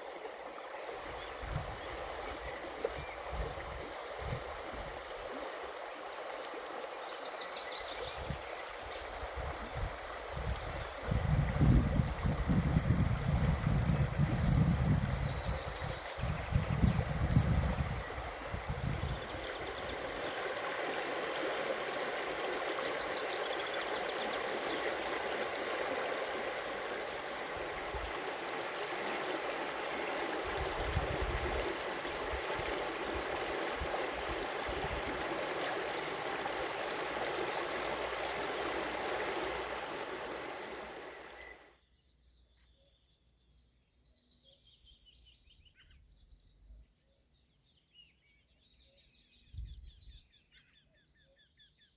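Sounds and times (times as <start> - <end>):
running water rushing: 0.0 - 41.6
wind on microphone: 1.0 - 5.0, 8.0 - 8.5, 9.1 - 20.2, 26.9 - 41.4
faint high bird song: 6.4 - 28.9, 33.1 - 51.9.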